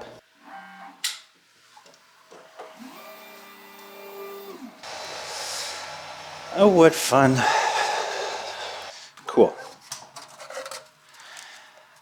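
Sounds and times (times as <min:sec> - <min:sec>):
laser cutter motors whining: 0:02.8 - 0:08.9
steady hiss: 0:04.8 - 0:09.2.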